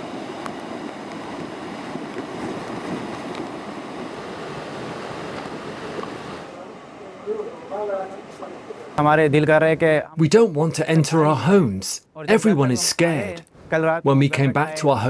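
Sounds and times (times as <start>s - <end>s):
floodwater rushing: 0.0s - 9.0s.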